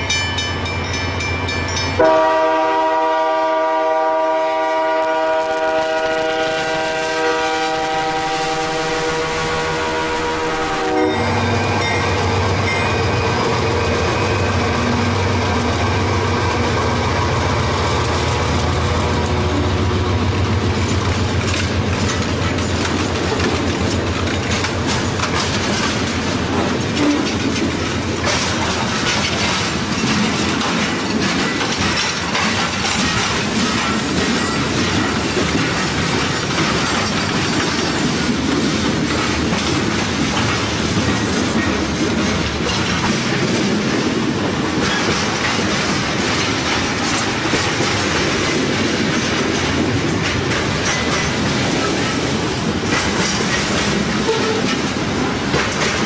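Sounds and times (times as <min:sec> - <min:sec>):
locomotive engines droning: 0:00.0 - 0:56.0
train wheels clacking over rail joints: 0:01.8 - 0:56.0
train horn: 0:02.0 - 0:11.8, 0:54.2 - 0:54.8.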